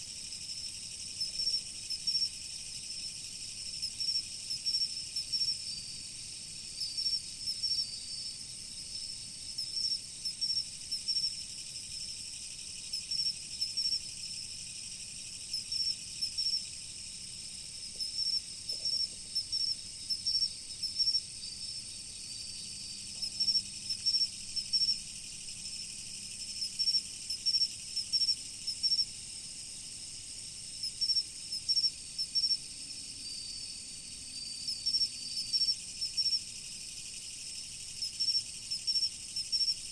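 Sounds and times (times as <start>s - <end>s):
high hiss of many insects: 0.0s - 39.9s
insects chirping: 0.0s - 39.9s.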